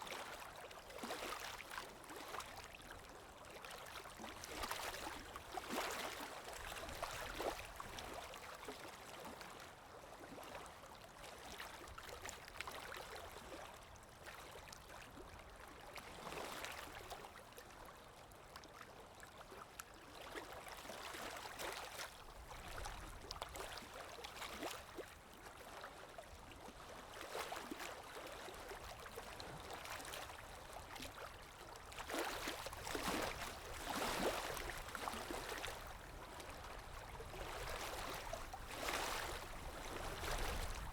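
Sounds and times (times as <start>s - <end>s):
small water splashes: 0.0s - 9.6s, 19.9s - 40.9s
river water rippling: 0.0s - 40.9s.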